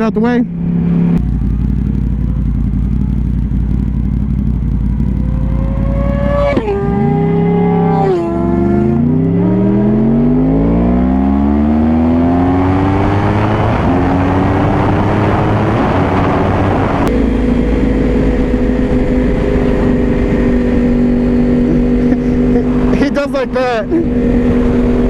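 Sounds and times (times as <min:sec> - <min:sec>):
motorcycle engine accelerating: 0:00.0 - 0:25.0
wind rush: 0:12.6 - 0:25.0.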